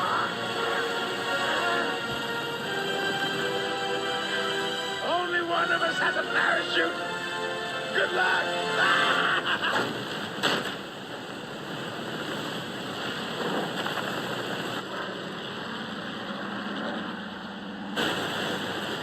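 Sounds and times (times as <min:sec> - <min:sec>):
aircraft engine drone: 0:00.0 - 0:19.0
rushing wind: 0:09.4 - 0:19.0.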